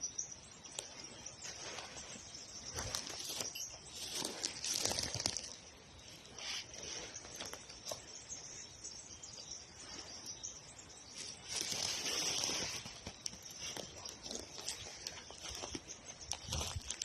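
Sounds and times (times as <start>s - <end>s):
rustles and clicks: 1.4s - 5.7s, 11.2s - 17.0s.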